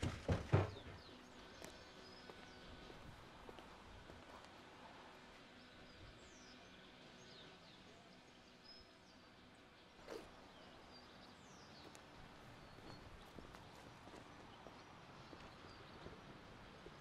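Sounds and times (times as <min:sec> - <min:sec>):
low background hum: 0:00.0 - 0:17.0
faint bird chirps: 0:09.9 - 0:16.2.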